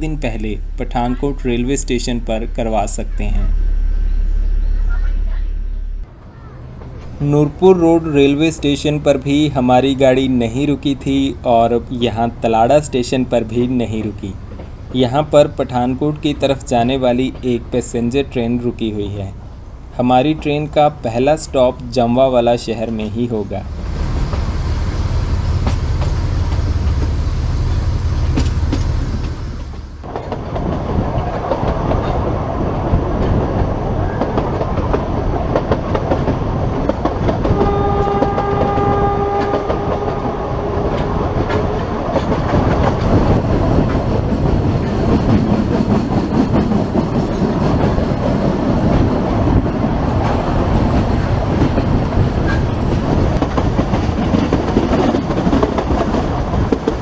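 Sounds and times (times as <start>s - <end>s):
deep low rumble: 0.0s - 6.1s
train wheels clattering: 25.5s - 57.0s
train horn: 37.5s - 42.1s.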